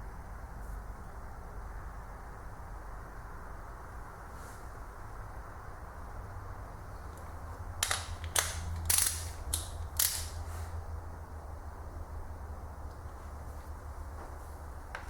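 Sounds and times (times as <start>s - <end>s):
torque wrench clicks: 7.2s - 10.4s.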